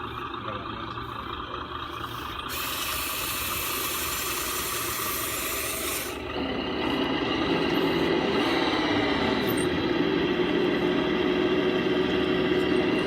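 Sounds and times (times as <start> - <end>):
toy bulldozer mechanical running: 2.0 - 9.9
rasping hiss: 2.5 - 6.2.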